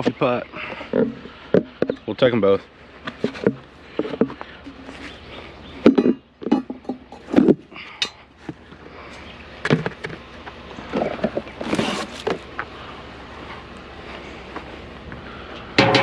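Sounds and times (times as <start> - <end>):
junk knocking and clattering: 15.8 - 16.0.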